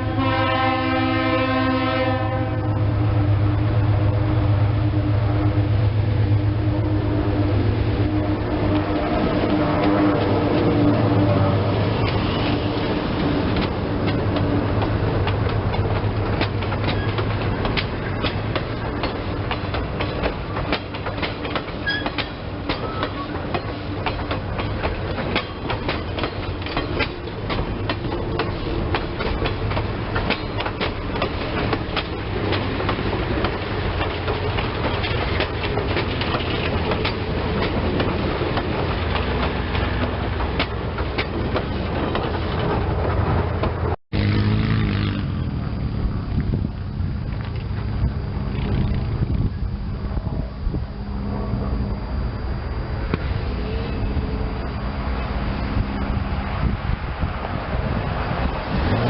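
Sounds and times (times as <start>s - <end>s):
locomotive low drone: 0.0s - 59.0s
wheels clicking over rail joints: 11.8s - 44.0s.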